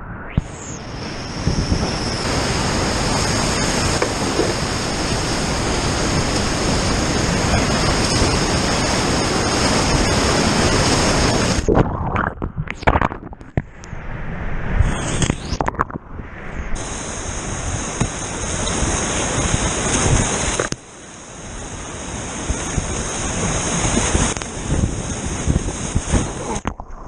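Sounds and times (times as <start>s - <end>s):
rushing whitewater: 0.5s - 11.8s, 16.8s - 26.6s.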